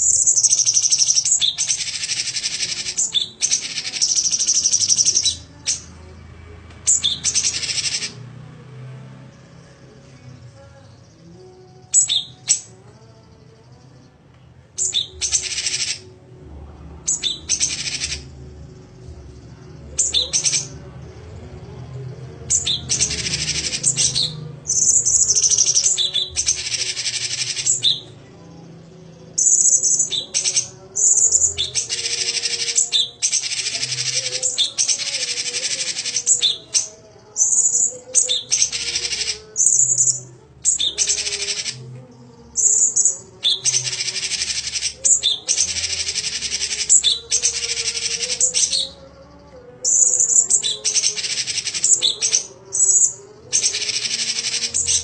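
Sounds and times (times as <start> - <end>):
songbird chattering trill: 0.0 - 5.9, 14.8 - 16.1, 17.1 - 18.3, 22.5 - 28.2, 29.4 - 41.9, 42.6 - 55.0
high bird chips: 29.4 - 41.8, 49.9 - 55.0.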